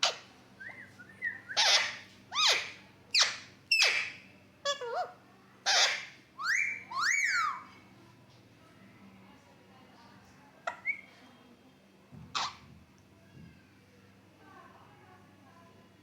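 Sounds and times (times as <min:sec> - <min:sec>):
parrot shrill calls and whistles: 0:00.0 - 0:05.0, 0:05.6 - 0:07.7.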